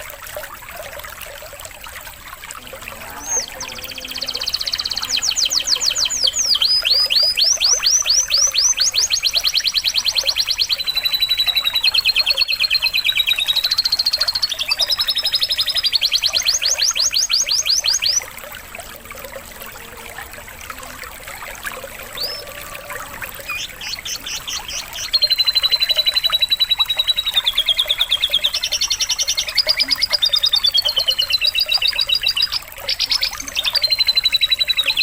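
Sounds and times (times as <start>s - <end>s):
faint trickling water: 0.0s - 35.0s
canary singing trills: 2.5s - 18.3s, 19.4s - 35.0s.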